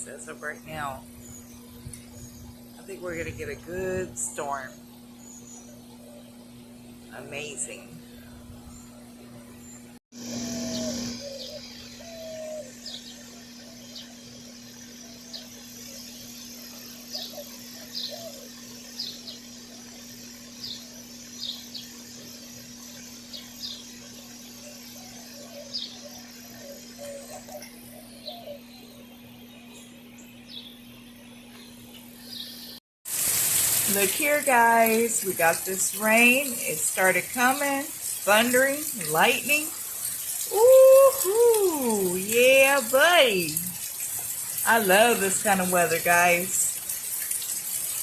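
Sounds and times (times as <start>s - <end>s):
birds chirping: 0.0s - 32.8s, 33.9s - 46.8s
steady low hum: 0.0s - 32.8s.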